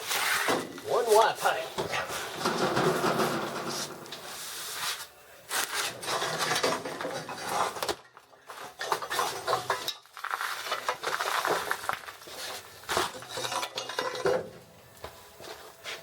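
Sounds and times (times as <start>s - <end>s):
metal scraping and clinking: 12.3s - 14.5s.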